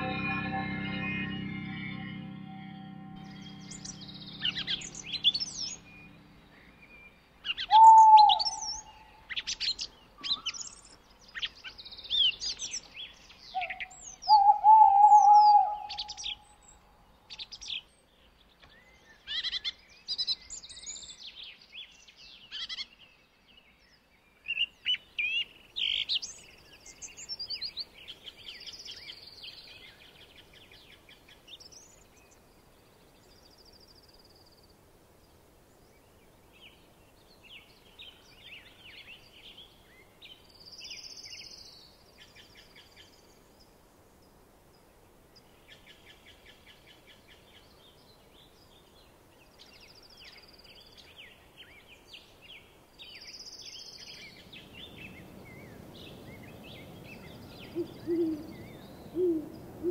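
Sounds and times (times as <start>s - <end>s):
birds chirping and trilling: 0.0s - 32.4s, 47.3s - 59.9s
louder low bird calls: 3.2s - 10.8s, 13.5s - 16.7s, 57.2s - 59.9s.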